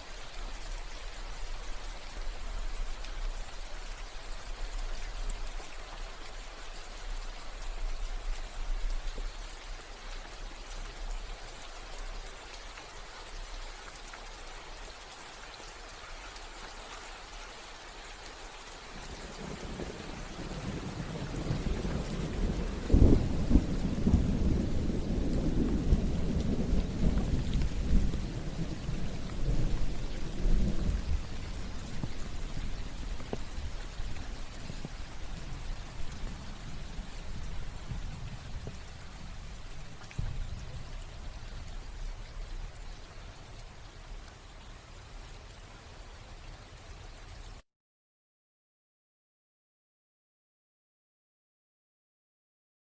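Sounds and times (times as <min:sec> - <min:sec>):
steady rain falling: 0:00.0 - 0:47.6
thunder rumbling and cracking: 0:19.3 - 0:39.5, 0:40.1 - 0:41.0.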